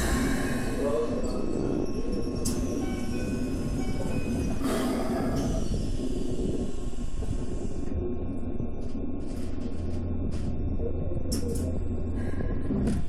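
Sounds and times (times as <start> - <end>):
low hum inside train car: 0.0 - 13.0.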